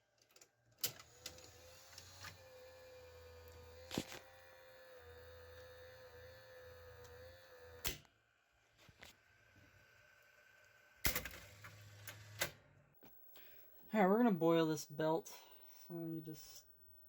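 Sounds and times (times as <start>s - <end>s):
vcr motor whine and hum: 0.9s - 12.6s.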